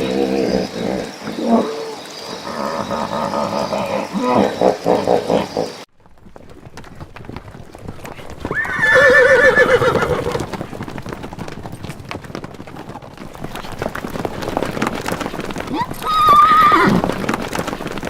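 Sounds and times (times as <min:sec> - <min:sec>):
horse whinnying: 0:00.0 - 0:05.7, 0:08.5 - 0:10.6, 0:15.7 - 0:17.3
hooves clattering: 0:00.0 - 0:18.0
animal rapid pulsed calls: 0:15.6 - 0:17.2.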